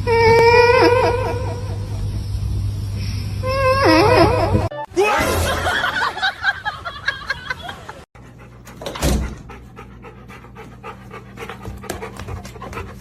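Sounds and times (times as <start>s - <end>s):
dog panting: 8.2s - 13.0s.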